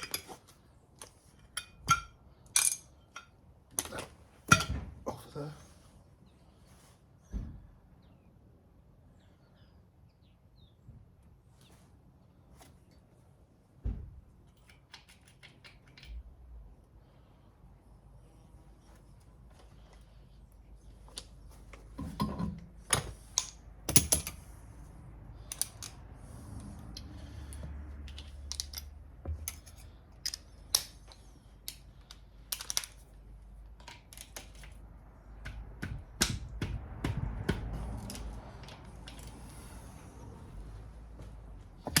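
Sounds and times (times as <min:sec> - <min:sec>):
hand tools and metal parts clinking: 0:00.0 - 0:05.5, 0:14.4 - 0:16.3, 0:20.8 - 0:40.6, 0:41.2 - 0:42.0.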